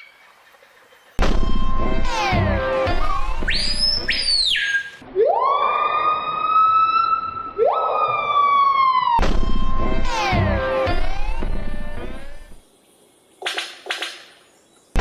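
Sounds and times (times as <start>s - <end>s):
siren-like wail: 1.2s - 4.3s, 5.0s - 12.6s.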